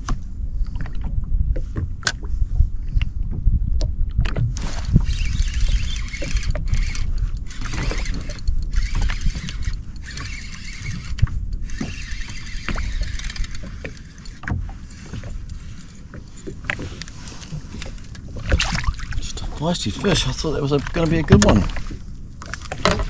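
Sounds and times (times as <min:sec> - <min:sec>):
wind and water rumble: 0:00.0 - 0:23.0
fishing reel whirring: 0:04.7 - 0:16.1.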